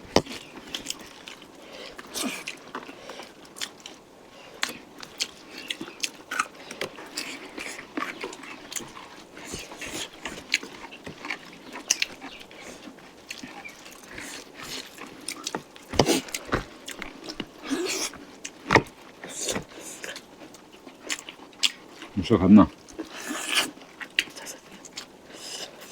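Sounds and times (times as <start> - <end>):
chewing and mouth sounds: 0.0 - 25.9
sharp crunches: 13.4 - 20.0.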